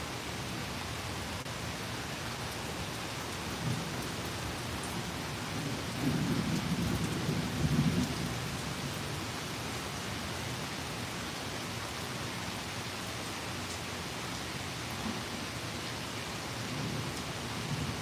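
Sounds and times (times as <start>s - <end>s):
steady rain: 0.0s - 18.0s
thunder rumbling: 5.4s - 8.8s.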